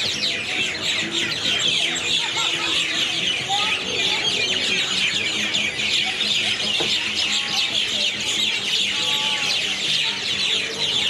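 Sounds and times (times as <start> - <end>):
chorus of birds chirping: 0.0 - 11.0.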